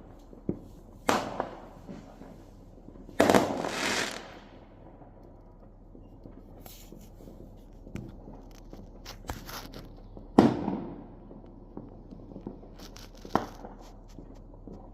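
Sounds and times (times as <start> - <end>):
distant firecracker crackles and pops: 0.0 - 14.9
firework bang with echo: 1.0 - 2.1, 3.2 - 4.8, 10.4 - 11.2.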